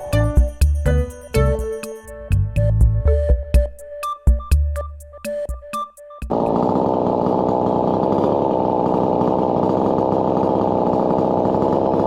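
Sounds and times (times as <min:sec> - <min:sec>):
tractor diesel engine running: 0:06.3 - 0:12.0.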